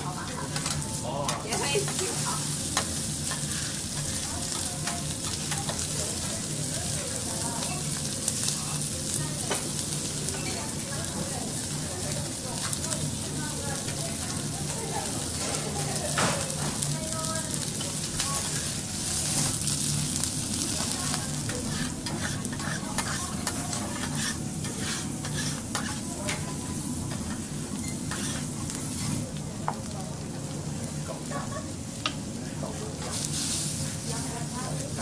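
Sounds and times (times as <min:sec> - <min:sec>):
food sizzling on a griddle: 0:00.0 - 0:35.0
metal spatulas scraping hot plate: 0:01.5 - 0:06.3, 0:21.0 - 0:26.5, 0:27.2 - 0:29.2.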